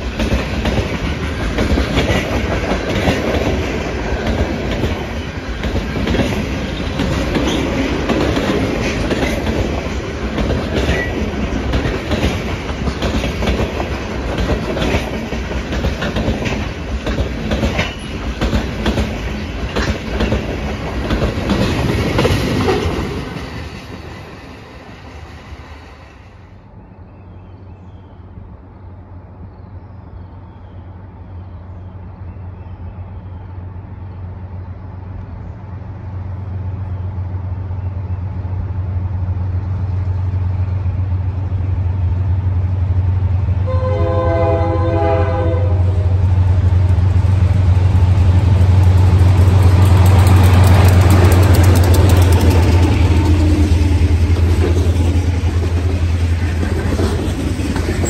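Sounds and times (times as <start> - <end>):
freight cars wheels on rail: 0.0 - 58.0
locomotive engine rumble: 33.1 - 58.0
train horn blast: 43.6 - 46.2.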